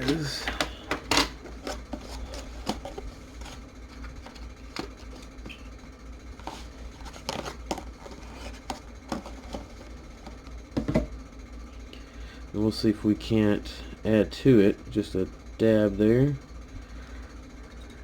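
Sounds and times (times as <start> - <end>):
low electrical hum: 0.0 - 18.0
knock on workbench: 10.8 - 11.1.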